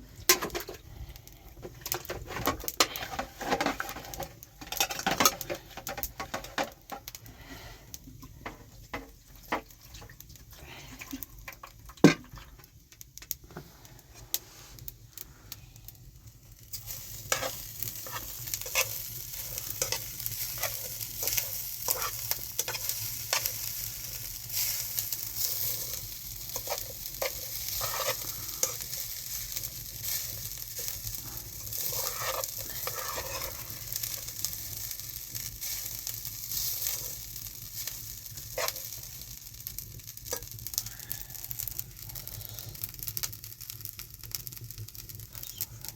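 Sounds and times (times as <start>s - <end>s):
stirring clicks and scrapes: 1.4s - 7.3s, 16.7s - 43.4s
food sizzling in a pan: 1.8s - 10.9s, 16.3s - 45.9s.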